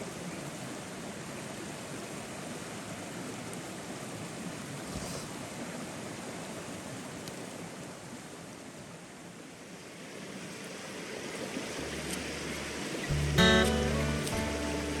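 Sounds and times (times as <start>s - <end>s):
mountain stream rushing: 0.0s - 15.0s
acoustic guitar music: 11.8s - 15.0s.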